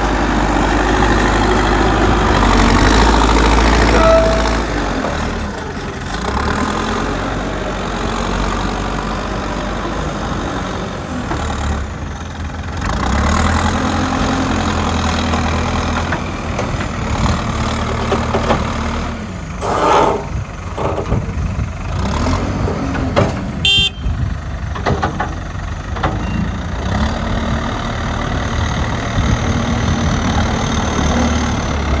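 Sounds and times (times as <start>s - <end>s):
diesel machinery engine running: 0.0s - 32.0s
brief high-pitched tone: 3.9s - 4.8s.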